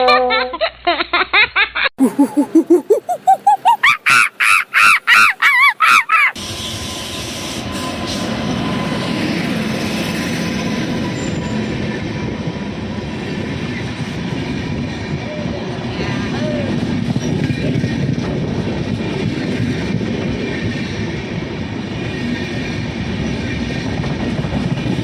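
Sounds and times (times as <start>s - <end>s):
short pitched calls: 2.0s - 6.4s
passing train rumble: 6.4s - 25.0s.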